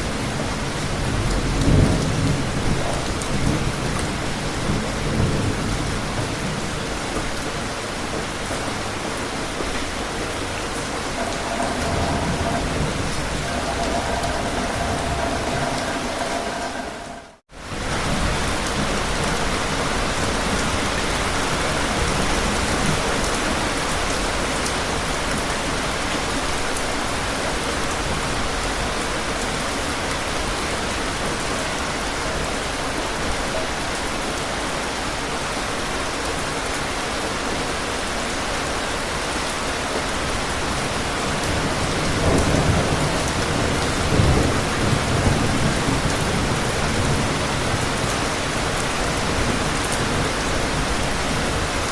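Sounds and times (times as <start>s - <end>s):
steady rain hiss: 0.0s - 51.9s
distant thunder rumbles: 0.1s - 17.4s.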